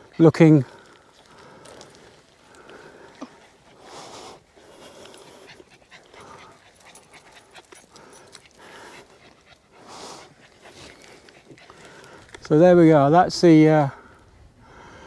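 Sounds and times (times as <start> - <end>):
dog panting: 0.0 - 12.4
faint clicks and rustles: 0.1 - 12.6.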